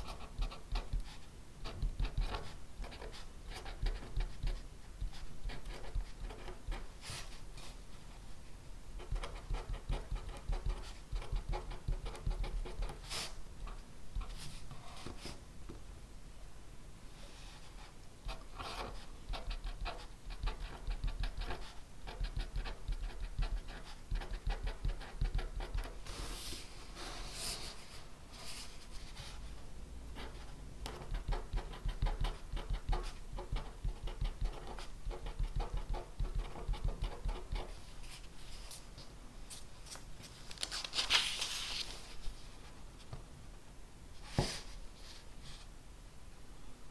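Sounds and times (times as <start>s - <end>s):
pen scratching on paper: 0.0s - 6.8s, 9.0s - 13.2s, 18.3s - 26.0s, 30.2s - 37.8s.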